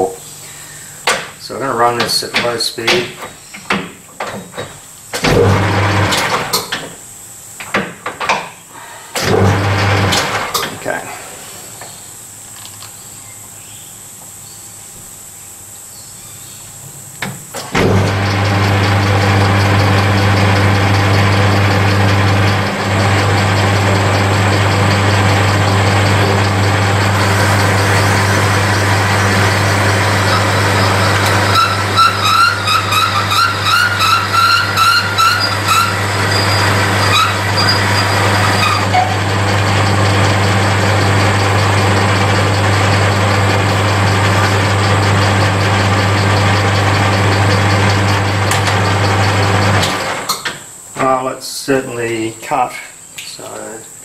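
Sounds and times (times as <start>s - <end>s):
metal lathe running: 17.9s - 50.2s
reamer chattering with pulsing squeal: 24.2s - 39.2s.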